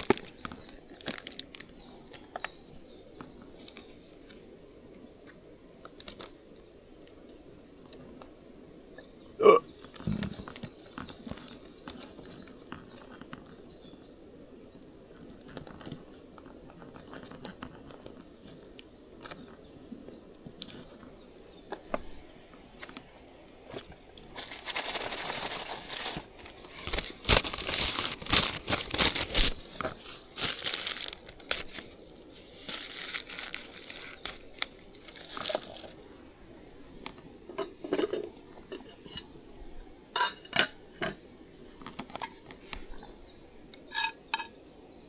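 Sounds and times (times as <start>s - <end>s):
crinkling and rustling: 0.0s - 4.4s, 9.8s - 13.6s, 15.1s - 19.7s, 20.4s - 39.4s.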